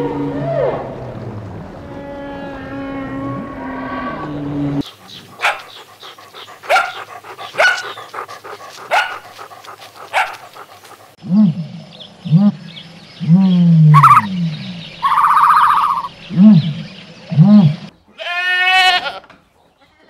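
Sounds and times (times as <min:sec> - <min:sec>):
whale song: 0:00.0 - 0:04.4, 0:13.9 - 0:14.3, 0:15.0 - 0:16.6
dog barking: 0:04.8 - 0:11.1, 0:13.9 - 0:14.3, 0:15.0 - 0:16.1
short low animal call: 0:13.9 - 0:14.3.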